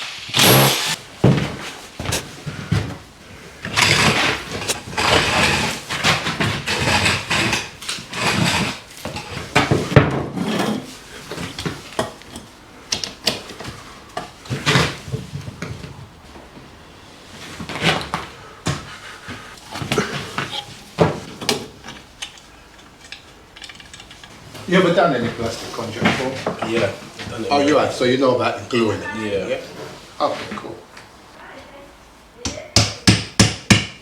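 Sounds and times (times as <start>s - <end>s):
tools knocking and clattering: 3.6s - 16.1s, 19.5s - 25.4s.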